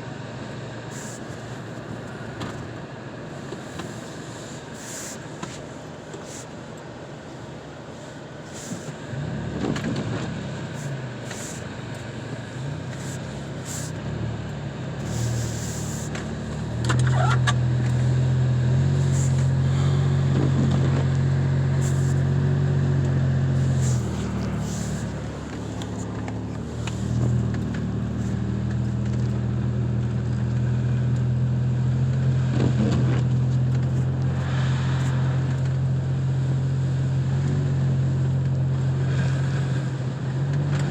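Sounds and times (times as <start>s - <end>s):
car engine running: 0.0s - 40.9s
road noise: 0.0s - 40.9s.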